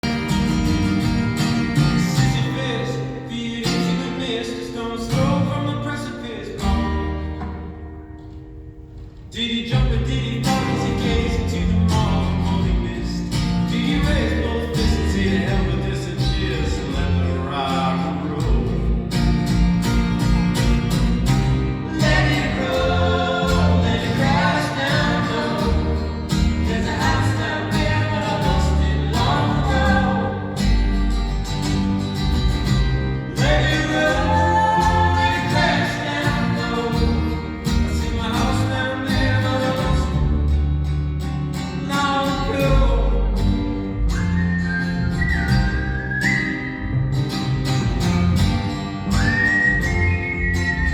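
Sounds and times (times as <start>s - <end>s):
sustained low bass notes: 6.7s - 41.5s
person singing: 21.8s - 30.9s, 33.3s - 40.2s.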